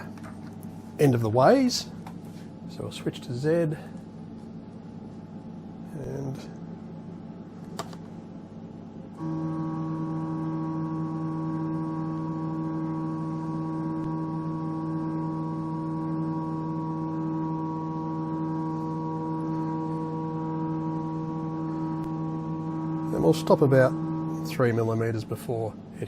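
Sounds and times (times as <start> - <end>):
stepper motor whining: 9.2 - 25.2.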